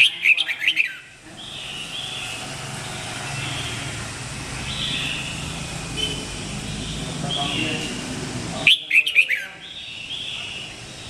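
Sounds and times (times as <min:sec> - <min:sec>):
vehicle engine rumbling: 0:01.1 - 0:08.7.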